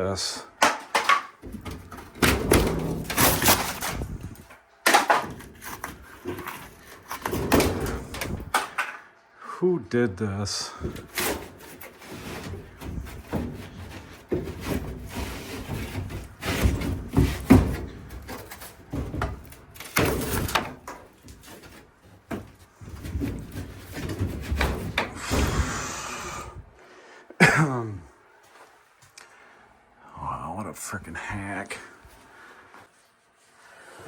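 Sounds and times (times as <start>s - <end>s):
objects knocking and rubbing: 0.5s - 9.1s, 10.8s - 26.7s.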